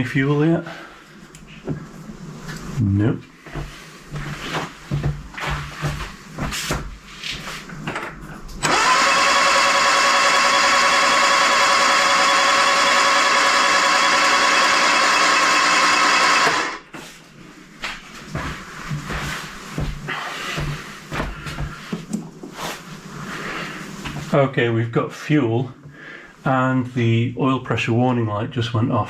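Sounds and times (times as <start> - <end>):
starter motor cranking engine: 8.6 - 16.8.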